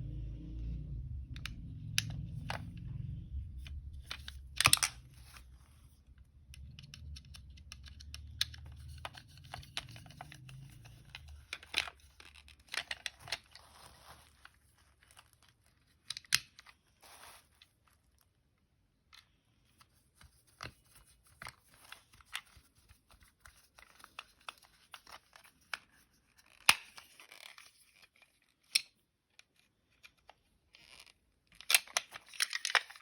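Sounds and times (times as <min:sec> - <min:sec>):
low hum: 0:00.0 - 0:07.4
handling clicks and rustles: 0:01.3 - 0:33.0.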